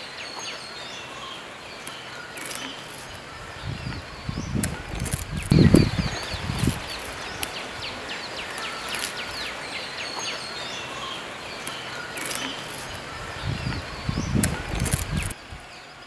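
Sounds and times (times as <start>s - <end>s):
steady hiss: 0.0s - 16.0s
bird chirping rapidly: 0.2s - 15.4s
low rumbles: 3.2s - 8.0s, 12.9s - 15.6s
sharp ticks: 4.5s - 5.8s, 14.3s - 15.4s.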